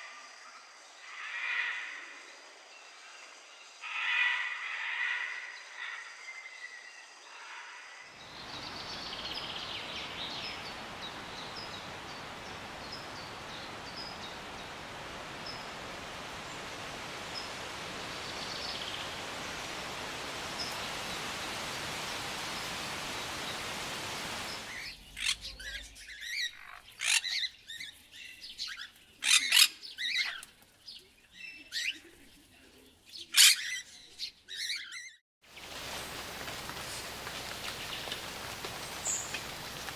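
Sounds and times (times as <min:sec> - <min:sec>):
steady hiss: 0:08.2 - 0:25.9, 0:35.5 - 0:39.9
birds chirping: 0:08.2 - 0:30.4, 0:34.6 - 0:39.9
loud sharp bird calls: 0:34.5 - 0:39.9.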